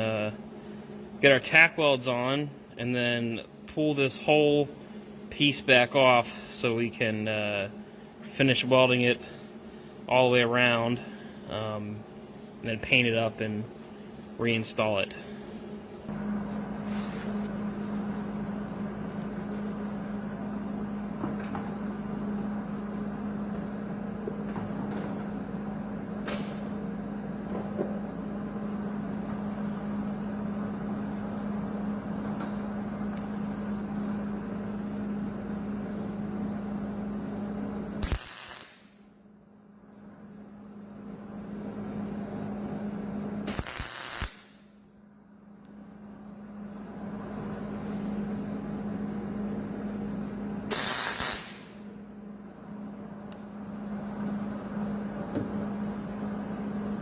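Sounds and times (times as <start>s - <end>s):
welder crackling bursts: 38.0s - 39.0s, 43.5s - 44.6s, 50.7s - 51.8s.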